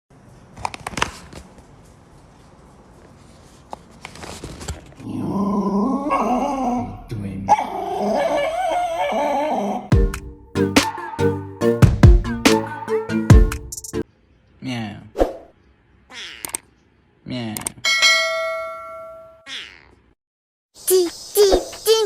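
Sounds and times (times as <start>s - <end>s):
dog whining: 5.6s - 6.9s, 7.5s - 9.9s
music beat: 9.9s - 14.0s.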